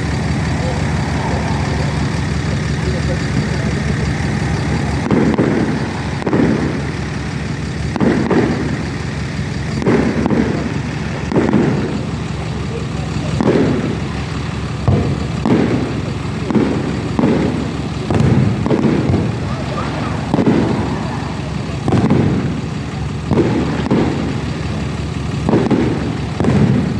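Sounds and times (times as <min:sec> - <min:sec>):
low rumble: 0:00.0 - 0:12.4, 0:18.0 - 0:25.3
fireworks bursting with bangs: 0:00.0 - 0:26.9.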